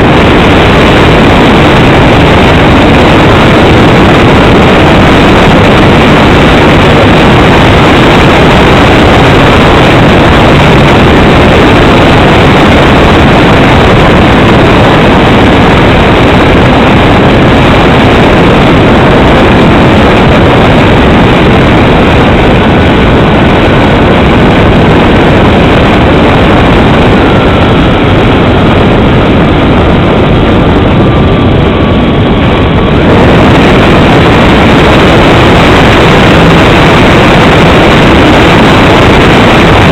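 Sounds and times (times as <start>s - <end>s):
aircraft engine and airflow noise: 0.0s - 39.9s.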